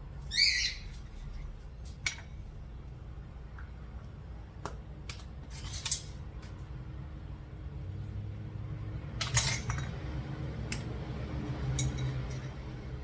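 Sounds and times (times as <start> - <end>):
measuring spoon clinking containers: 9.2 - 10.0, 11.6 - 12.8.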